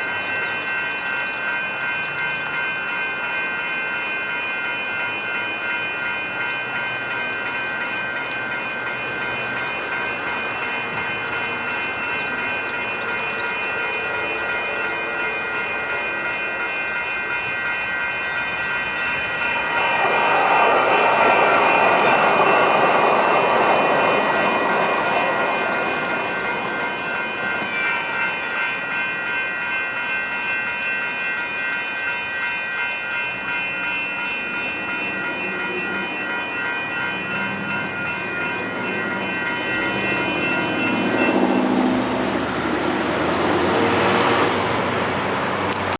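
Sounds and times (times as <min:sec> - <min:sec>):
crossing bell ringing: 0:00.0 - 0:45.9
light rail train rumbling past: 0:00.0 - 0:45.9
passing road traffic: 0:07.3 - 0:28.9, 0:34.7 - 0:45.9.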